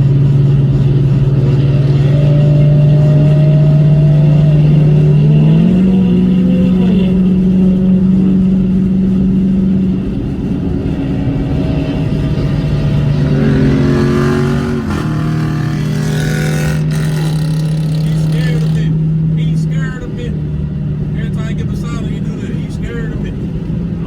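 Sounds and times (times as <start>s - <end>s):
car engine drone: 0.0s - 24.0s
engine revving: 0.0s - 24.0s.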